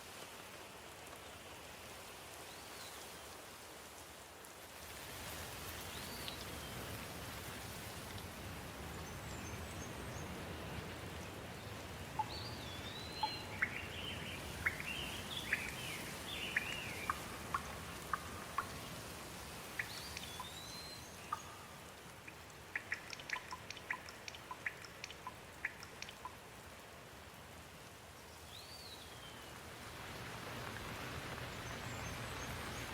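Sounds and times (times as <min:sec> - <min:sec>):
steady rain falling: 0:00.0 - 0:32.9
water drops plinking: 0:12.1 - 0:18.8, 0:19.8 - 0:26.4
birds chirping: 0:12.2 - 0:18.9, 0:19.7 - 0:26.3.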